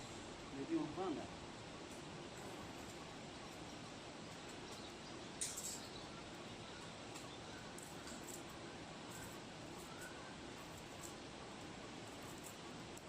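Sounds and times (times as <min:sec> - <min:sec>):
faint bird chirps: 0:04.2 - 0:11.1.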